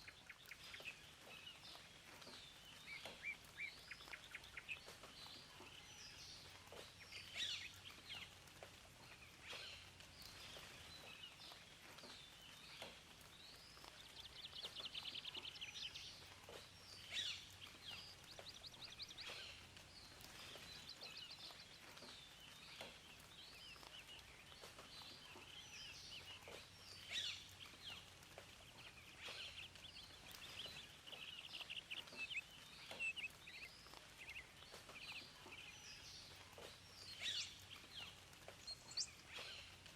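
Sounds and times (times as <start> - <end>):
faint steady hiss: 0.0 - 39.9
songbirds singing and chirping: 0.0 - 39.9.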